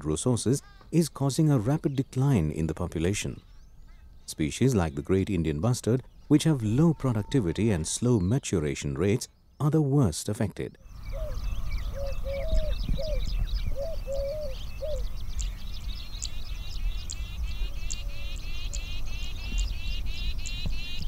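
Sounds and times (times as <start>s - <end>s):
songbirds chirping: 0.0s - 21.0s
low arched bird call notes: 6.0s - 8.5s, 10.8s - 21.0s
bird trill: 6.0s - 9.6s, 10.8s - 21.0s.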